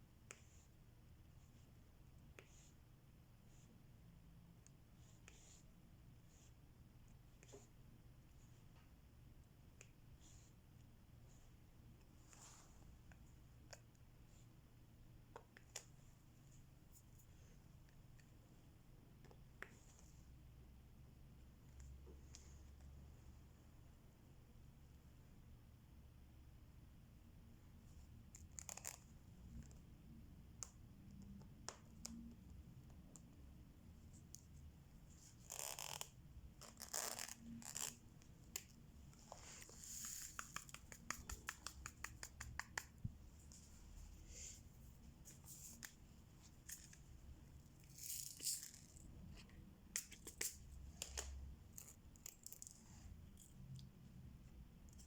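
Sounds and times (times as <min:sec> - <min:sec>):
small clicks and taps: 0:39.9 - 0:43.2.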